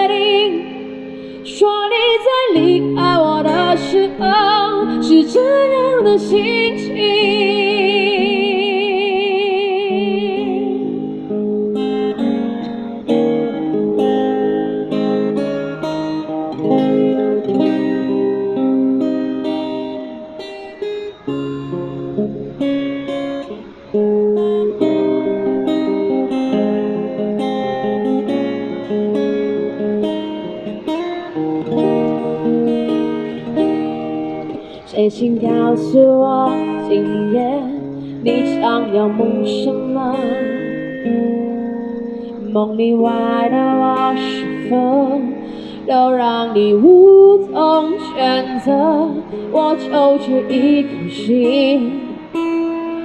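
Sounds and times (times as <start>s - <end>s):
woman singing with vibrato: 0.0s - 11.2s, 34.6s - 41.0s, 42.4s - 52.7s
acoustic guitar strumming: 0.0s - 53.0s.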